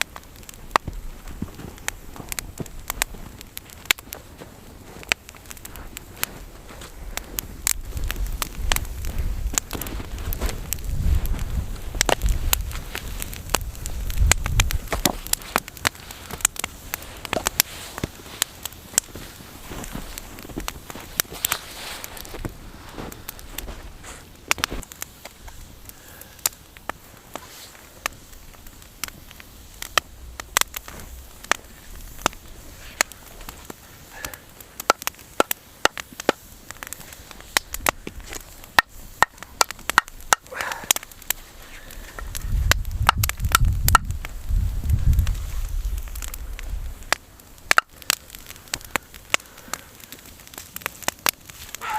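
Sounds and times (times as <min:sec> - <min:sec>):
campfire crackling and popping: 0:00.0 - 0:51.9
wind buffeting microphone: 0:07.0 - 0:15.8, 0:41.9 - 0:47.2.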